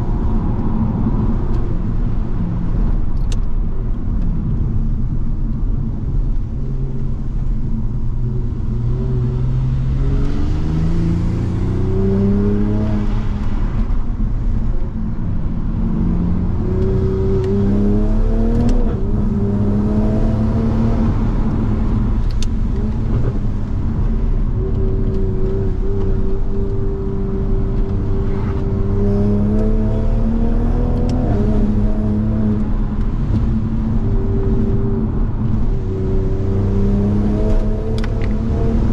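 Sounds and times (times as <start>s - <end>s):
road and tyre noise: 0.0s - 38.9s
turbocharged car engine revving: 27.5s - 33.7s, 34.5s - 38.9s.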